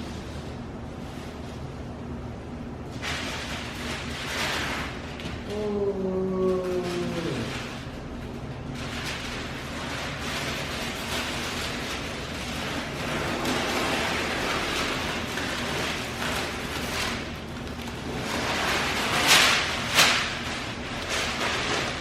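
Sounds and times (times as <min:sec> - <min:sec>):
plastic film crackling and rustling: 0:02.9 - 0:22.0
plastic film ripping: 0:08.7 - 0:22.0.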